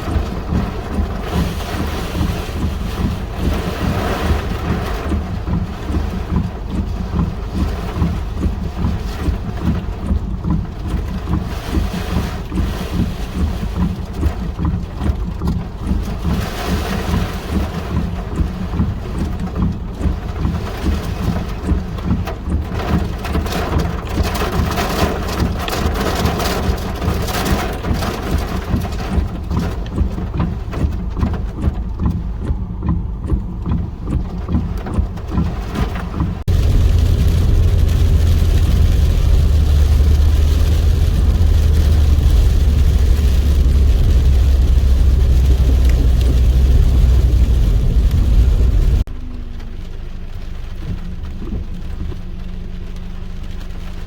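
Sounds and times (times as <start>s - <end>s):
gusty wind on microphone: 36.4s - 49.1s.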